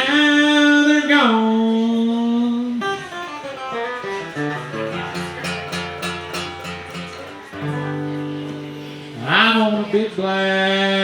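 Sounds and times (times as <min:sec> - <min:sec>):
guitar playing: 0:02.5 - 0:10.2.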